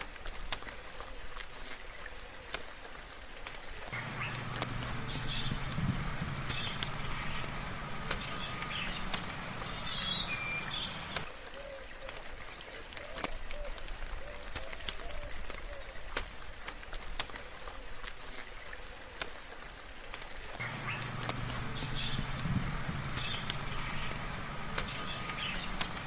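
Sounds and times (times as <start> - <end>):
gentle rain: 0.0 - 26.0
sharp drip ticks: 3.4 - 11.4, 12.1 - 26.0
birds chirping: 3.8 - 12.2, 20.6 - 26.0
low drone: 4.0 - 11.3, 20.6 - 26.0.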